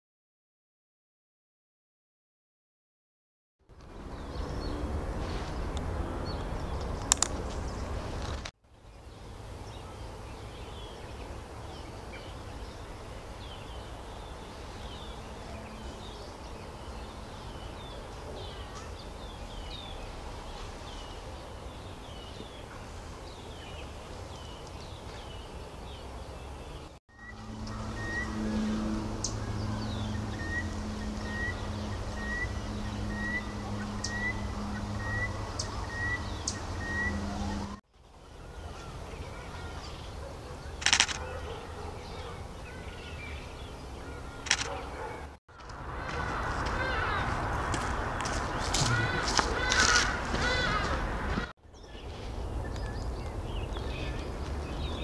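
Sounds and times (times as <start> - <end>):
small birds chirping: 4.0 - 55.0
steady low hum: 27.2 - 37.8.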